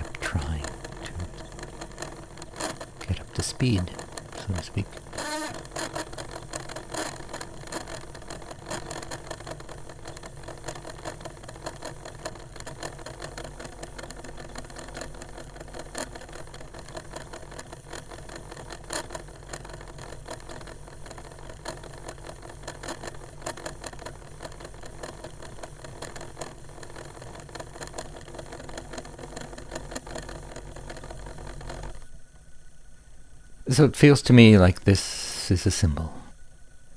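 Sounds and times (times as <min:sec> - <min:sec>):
cd player clicking: 0:00.0 - 0:06.6
cd player motor whirring and rattling: 0:00.0 - 0:32.5.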